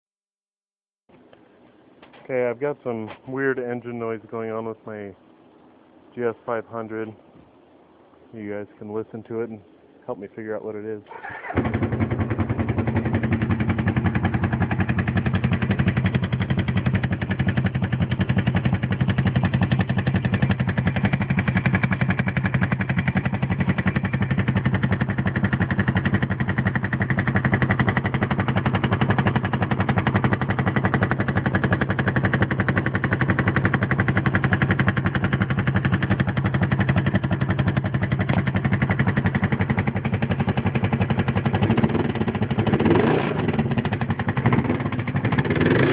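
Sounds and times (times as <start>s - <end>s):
weird engine noise: 1.1s - 45.9s
motorcycle engine idling: 11.2s - 45.8s.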